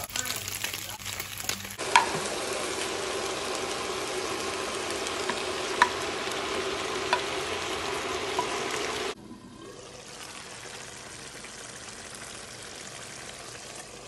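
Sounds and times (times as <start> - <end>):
meat sizzling in a frying pan: 0.0 - 9.2.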